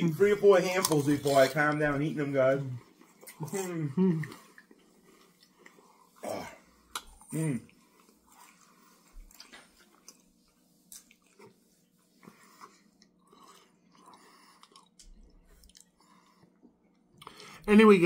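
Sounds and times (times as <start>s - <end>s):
chewing crunchy chips: 0.6s - 1.8s, 6.8s - 11.6s, 12.5s - 17.4s.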